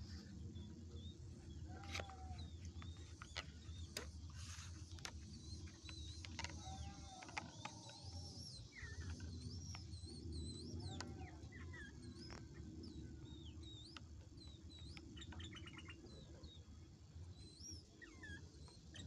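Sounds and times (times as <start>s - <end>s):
steady low hum: 0.0s - 19.0s
bird whistling and chirping: 5.6s - 12.5s, 14.8s - 16.2s, 17.4s - 19.0s.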